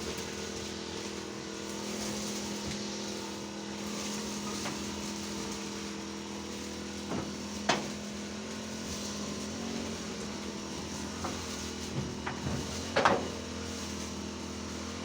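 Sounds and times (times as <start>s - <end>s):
motor running: 0.0s - 15.0s.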